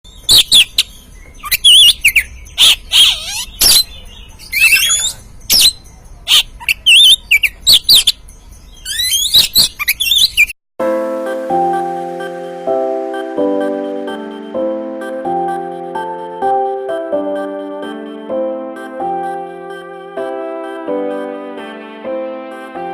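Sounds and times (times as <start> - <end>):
bird singing: 0.1 - 10.6
music: 10.8 - 22.9.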